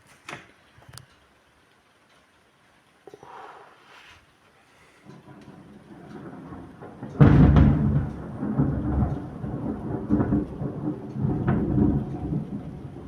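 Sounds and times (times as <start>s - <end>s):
heavy thunder rumbling: 5.1s - 13.0s
thunder crack: 5.1s - 13.0s.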